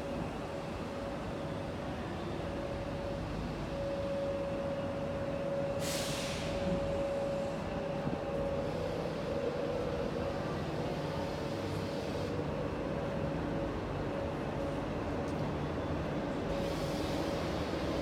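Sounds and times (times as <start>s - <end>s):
train mechanical hum: 0.0s - 18.0s
air brakes hissing: 5.8s - 6.8s, 16.5s - 18.0s.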